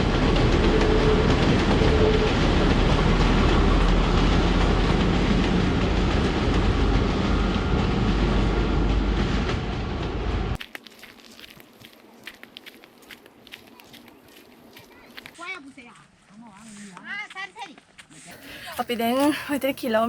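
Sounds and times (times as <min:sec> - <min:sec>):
train rumbling past: 0:00.0 - 0:10.6.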